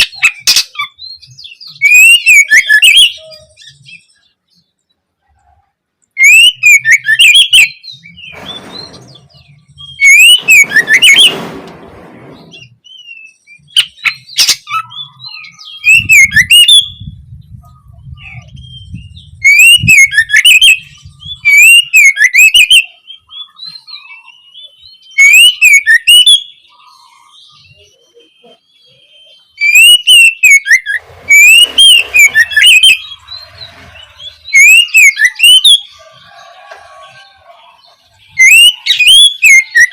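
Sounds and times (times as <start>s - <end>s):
bird chirping and whistling: 0.0s - 4.3s, 6.2s - 11.4s, 12.2s - 36.3s, 37.8s - 39.9s.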